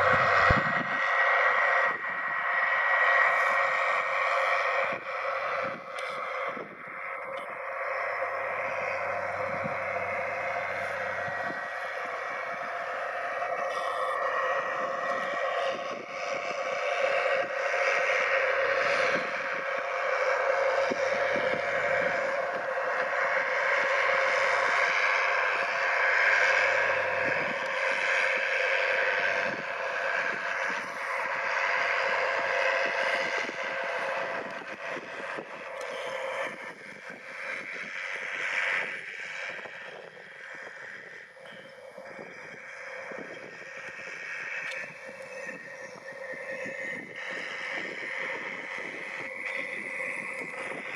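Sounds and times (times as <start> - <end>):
tractor engine running: 0.0 - 50.9.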